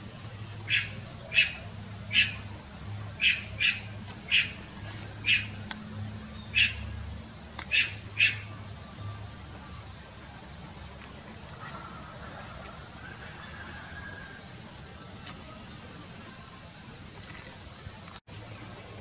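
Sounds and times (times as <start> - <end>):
bird harsh squawks: 0.6 - 2.5, 3.2 - 4.6, 5.2 - 5.6, 6.5 - 6.9, 7.6 - 8.5.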